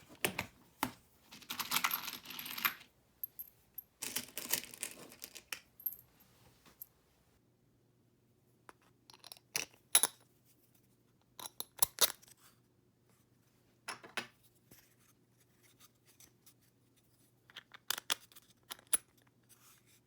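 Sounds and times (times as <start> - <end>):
clatter of small parts and tools: 0.2 - 6.1.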